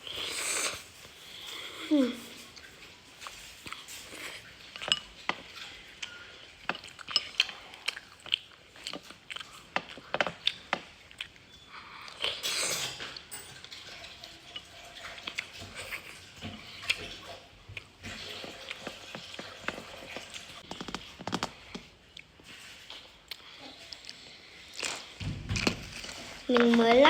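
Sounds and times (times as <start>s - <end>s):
chewing: 0.1s - 26.9s
utensils clinking against bowl: 3.2s - 7.6s, 12.3s - 17.1s.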